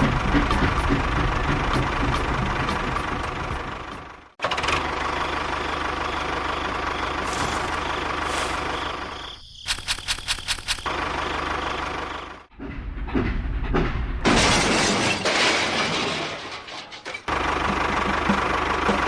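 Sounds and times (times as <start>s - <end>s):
tractor engine running: 0.0s - 14.6s, 17.2s - 19.0s
sharp clicks: 9.6s - 10.9s.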